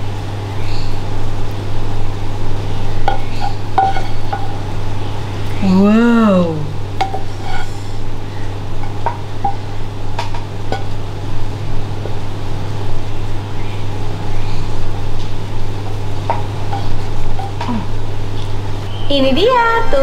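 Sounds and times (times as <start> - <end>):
low hum: 0.0 - 20.0
wooden spatula scraping a pan: 3.1 - 4.5, 7.1 - 7.9.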